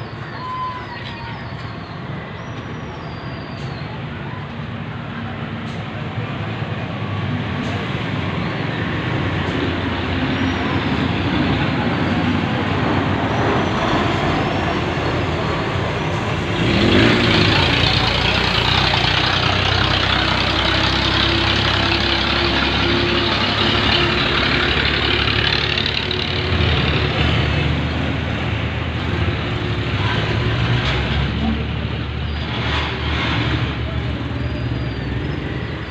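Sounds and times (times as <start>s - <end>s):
vehicle engines rumbling: 0.0s - 35.9s.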